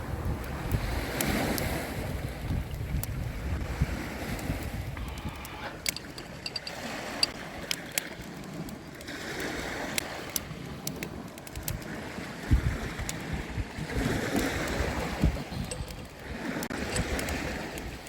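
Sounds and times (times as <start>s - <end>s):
sea waves washing onto shore: 0.0s - 18.0s.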